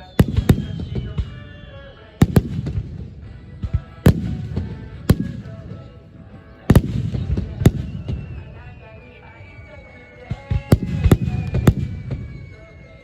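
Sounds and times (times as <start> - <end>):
firework shells bursting: 0.0 - 6.0, 6.7 - 8.7, 10.7 - 12.7
faint music: 0.0 - 13.0.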